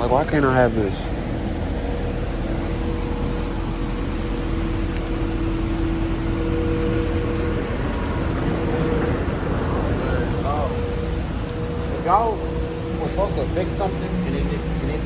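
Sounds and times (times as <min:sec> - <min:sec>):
steady low rumble: 0:00.0 - 0:15.0
two-note mechanical hum: 0:00.0 - 0:15.0.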